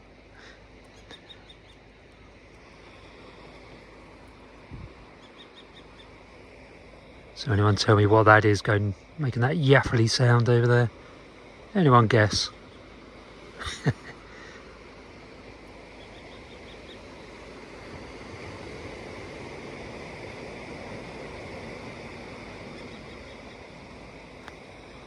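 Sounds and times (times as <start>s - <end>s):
distant bird laughing call: 0.3s - 1.9s, 13.4s - 14.9s.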